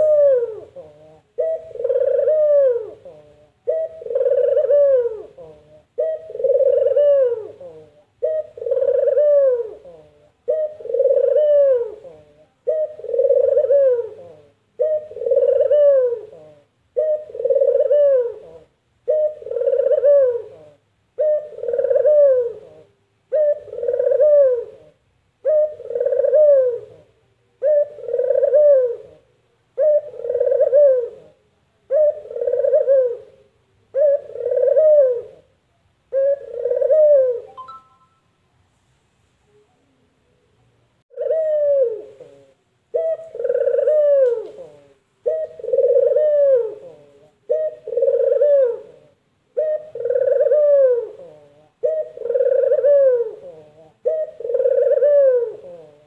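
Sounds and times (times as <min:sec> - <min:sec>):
dove cooing: 0:00.0 - 0:38.2, 0:41.1 - 0:56.0.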